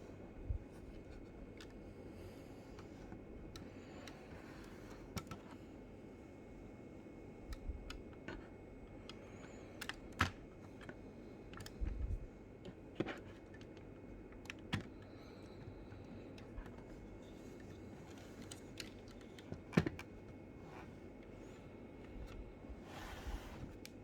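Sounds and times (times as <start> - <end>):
small clicks and taps of handling: 0.8 - 1.8, 2.8 - 5.6, 7.5 - 12.0, 12.6 - 20.4.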